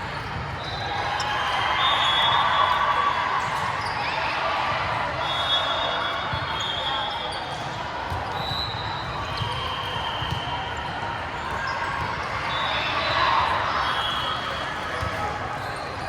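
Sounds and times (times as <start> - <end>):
sneakers squeaking on floor: 3.5 - 4.2, 6.1 - 13.2.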